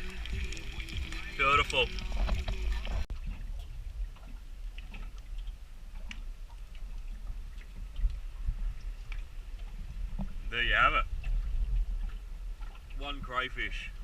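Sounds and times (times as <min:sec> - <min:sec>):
small crackles: 0:00.0 - 0:08.2.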